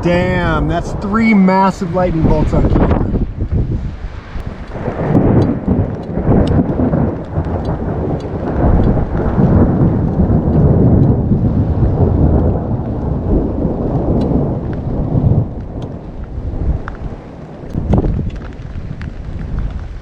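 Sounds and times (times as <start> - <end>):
rain falling: 0.0 - 20.0
rolling thunder: 0.0 - 20.0
drops ticking: 4.4 - 11.4.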